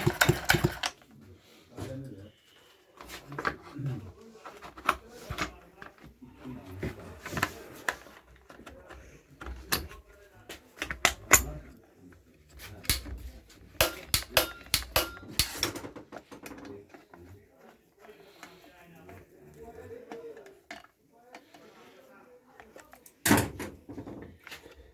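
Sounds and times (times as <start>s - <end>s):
hand tools and metal parts clattering: 0.0s - 1.1s, 12.4s - 17.1s.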